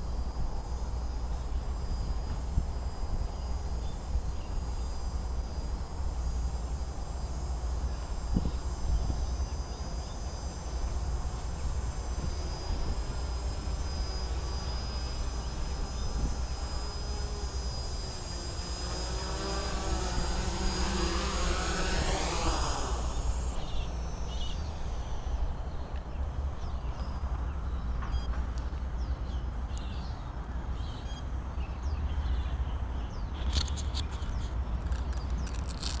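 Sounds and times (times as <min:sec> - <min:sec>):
wind rumbling on microphone: 0:00.0 - 0:28.0
drone propellers whining: 0:00.0 - 0:29.0.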